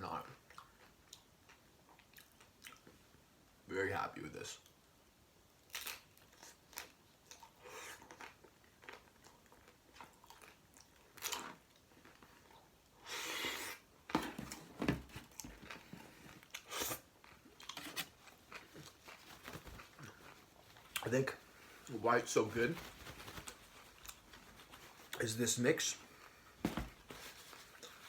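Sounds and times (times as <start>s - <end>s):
person chewing: 15.4s - 21.8s.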